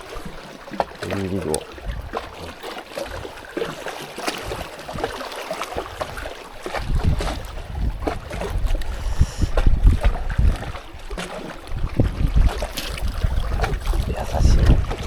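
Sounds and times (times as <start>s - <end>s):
water lapping: 0.0s - 15.0s
wind buffeting microphone: 1.1s - 3.4s, 5.8s - 15.0s.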